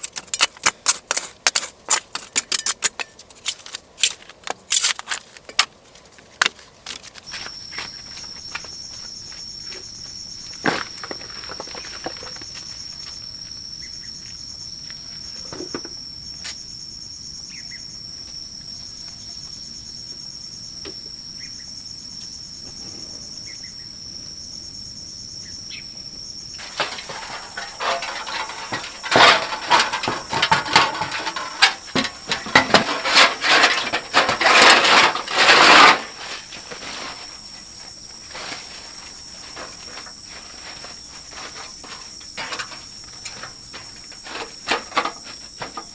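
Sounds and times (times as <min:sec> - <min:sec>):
loud clattering and knocking: 0:26.6 - 0:36.4.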